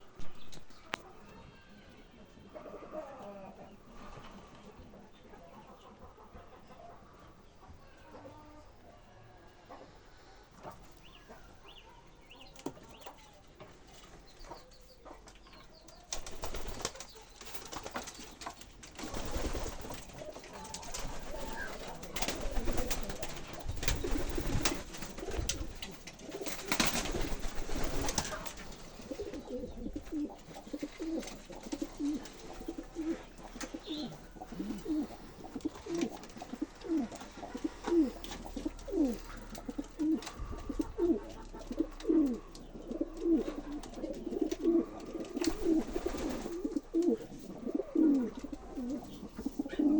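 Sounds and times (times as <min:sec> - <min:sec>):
pigeons cooing: 0:16.1 - 0:49.9.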